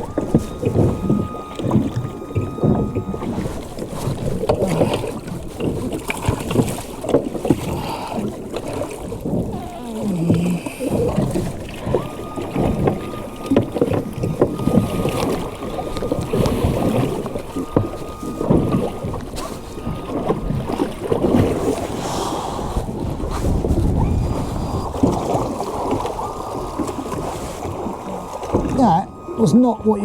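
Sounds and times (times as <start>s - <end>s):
boat engine running: 0.0s - 30.0s
water knocking and splashing on hull: 0.0s - 30.0s
wind on microphone: 9.0s - 30.0s.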